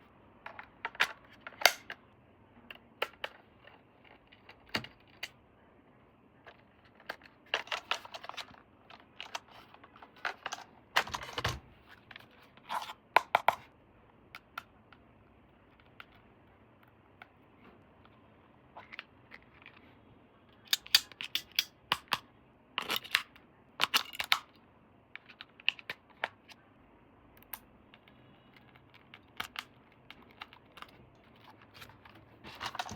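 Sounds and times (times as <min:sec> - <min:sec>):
plastic and cardboard rustling: 0:30.3 - 0:32.9.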